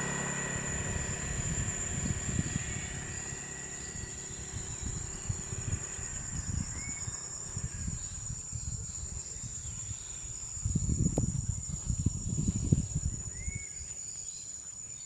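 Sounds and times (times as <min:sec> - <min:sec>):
low rumble: 0:00.0 - 0:08.3
insects droning: 0:00.0 - 0:15.0.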